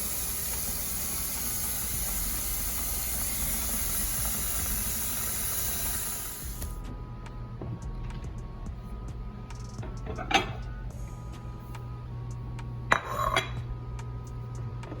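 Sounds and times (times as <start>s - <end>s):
food sizzling: 0.0s - 6.8s
soft background music: 2.0s - 15.0s.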